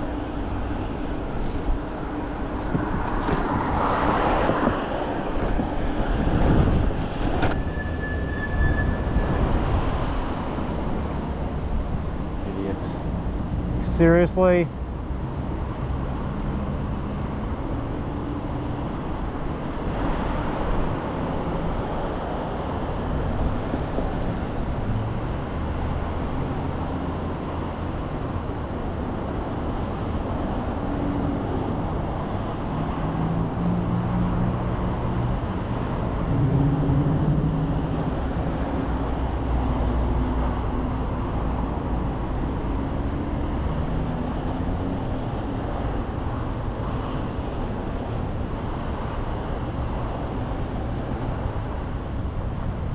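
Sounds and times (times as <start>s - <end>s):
car engine hum: 0.0s - 7.6s, 21.8s - 52.9s
road and tyre noise: 0.0s - 52.9s.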